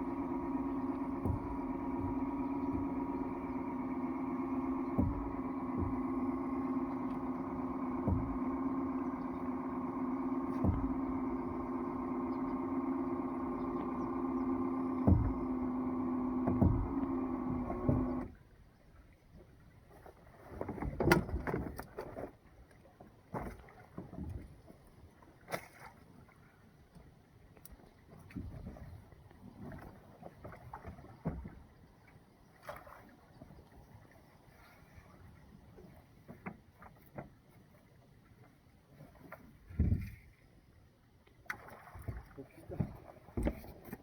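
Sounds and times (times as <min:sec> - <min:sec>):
small boat motor running: 0:00.0 - 0:44.0
thumps: 0:00.1 - 0:12.7, 0:13.3 - 0:18.3
knocks and bumps: 0:08.0 - 0:08.7, 0:10.5 - 0:11.6, 0:15.0 - 0:18.2.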